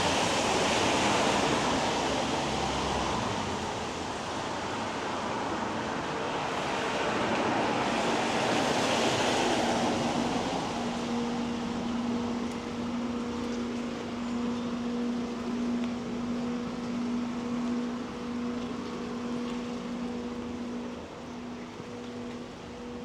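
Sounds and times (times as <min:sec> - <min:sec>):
tyres hissing on wet road: 0:00.0 - 0:16.4.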